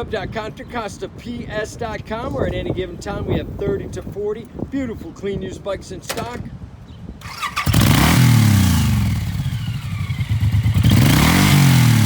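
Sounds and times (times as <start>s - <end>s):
motorcycle engine starting: 6.1s - 6.5s, 7.2s - 12.0s
motorcycle engine revving: 7.2s - 12.0s.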